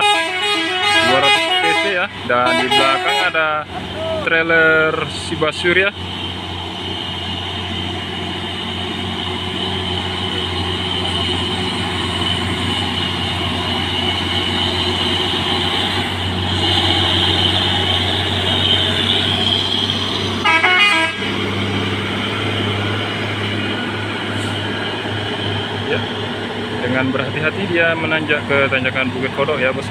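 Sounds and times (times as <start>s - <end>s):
short horn toot: 0.0s - 3.4s, 20.4s - 21.3s
diesel truck engine droning: 0.0s - 29.9s.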